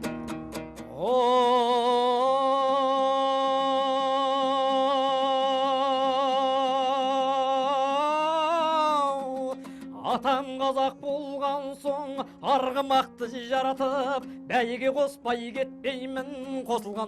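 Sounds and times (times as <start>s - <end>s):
plucked string accompaniment: 0.0s - 2.3s, 6.0s - 17.0s.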